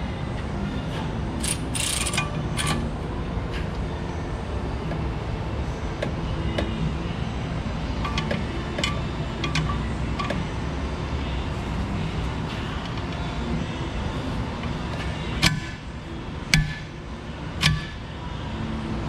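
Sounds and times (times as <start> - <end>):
socket wrench clanks: 1.4 - 2.9, 8.0 - 10.4, 15.0 - 15.8, 16.5 - 17.0, 17.6 - 18.0.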